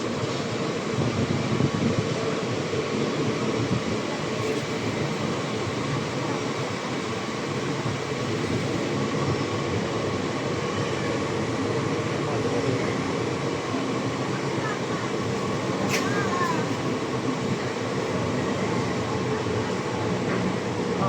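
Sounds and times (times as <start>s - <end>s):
train rumbling past on rails: 0.0s - 21.0s.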